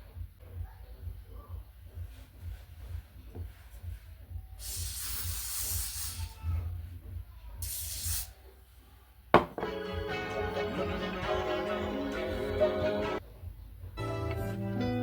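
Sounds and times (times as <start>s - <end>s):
aerosol hair spray hissing: 4.6s - 6.4s, 7.6s - 8.4s.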